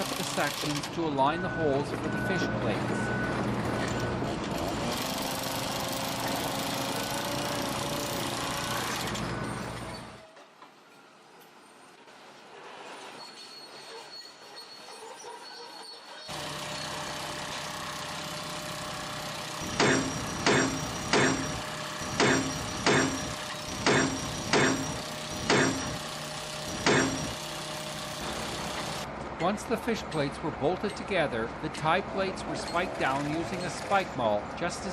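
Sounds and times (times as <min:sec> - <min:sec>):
machine engine hum: 0:16.3 - 0:29.1
hammer blows on steel: 0:19.7 - 0:26.0.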